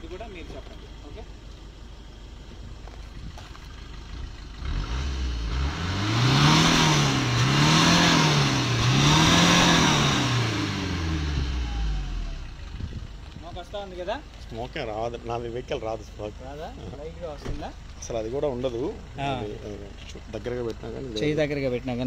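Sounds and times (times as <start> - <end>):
diesel engine revving: 0.0 - 13.8.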